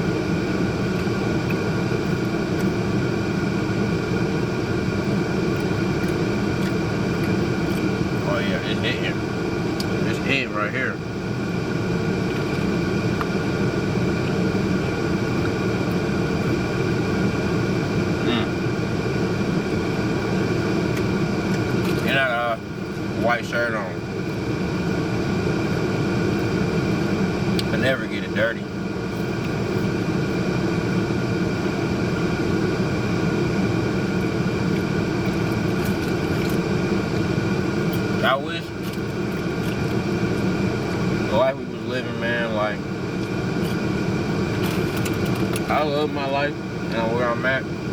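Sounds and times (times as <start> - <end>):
low mechanical rumble: 0.0 - 47.9
steady hum tones: 0.0 - 47.9.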